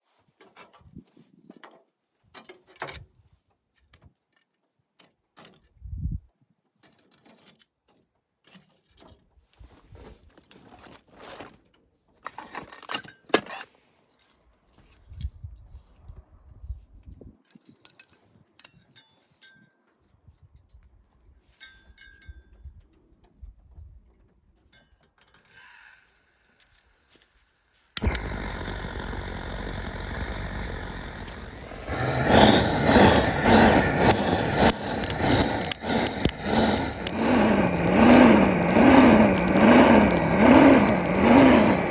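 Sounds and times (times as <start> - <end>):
gas torch hissing: 28.0 - 41.9.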